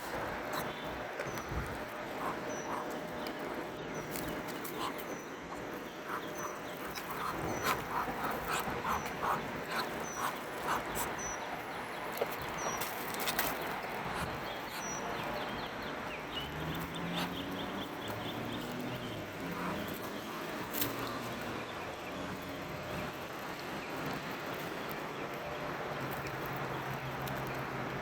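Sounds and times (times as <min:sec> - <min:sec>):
ducks making breathy calls: 0:01.7 - 0:11.8, 0:19.4 - 0:21.3.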